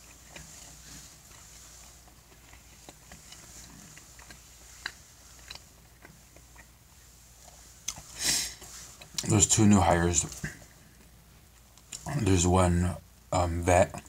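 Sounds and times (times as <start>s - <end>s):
chewing with wet mouth clicks: 0.0s - 9.3s, 10.3s - 12.2s
steady low hum: 0.0s - 14.0s.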